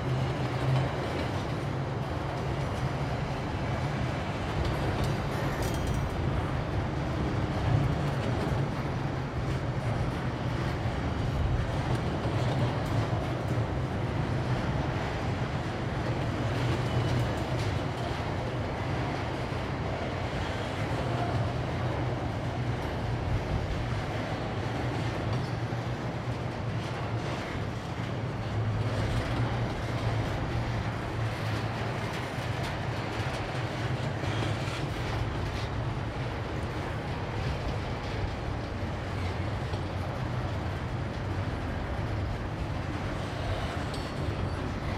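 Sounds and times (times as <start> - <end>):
low rumble of rail cars: 0.0 - 44.9
wheels clattering on track: 0.1 - 44.9.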